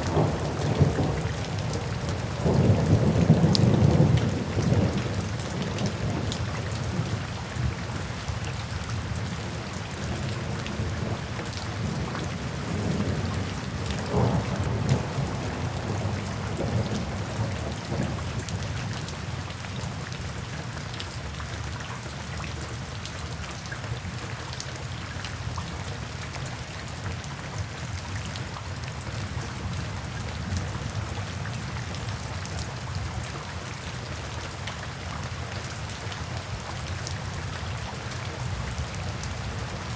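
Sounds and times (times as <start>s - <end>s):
heavy rain: 0.0s - 39.9s
rolling thunder rumble: 11.8s - 18.7s.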